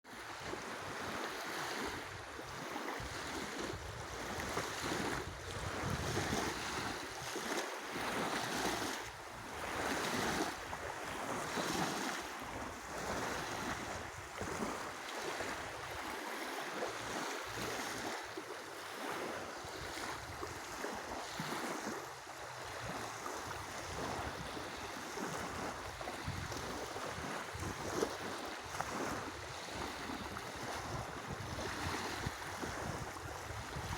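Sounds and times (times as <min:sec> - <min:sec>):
waves washing onto shore: 0:00.1 - 0:33.9
wind buffeting microphone: 0:01.8 - 0:07.3, 0:19.1 - 0:22.0, 0:22.6 - 0:33.9.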